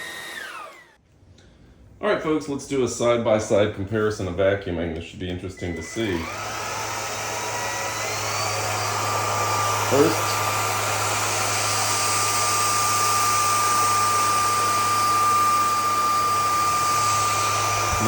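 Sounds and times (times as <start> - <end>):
stick vacuum motor whine: 0.0 - 1.0, 5.5 - 18.0.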